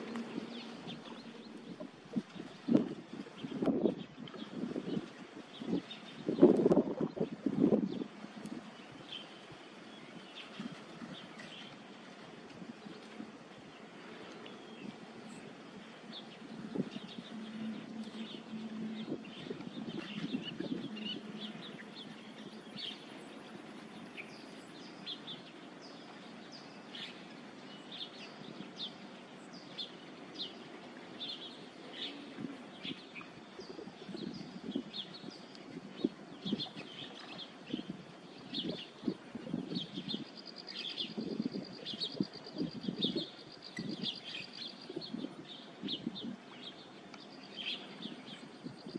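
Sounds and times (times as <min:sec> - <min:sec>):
birds chirping: 0:00.0 - 0:48.9
low steady hum: 0:00.0 - 0:48.9.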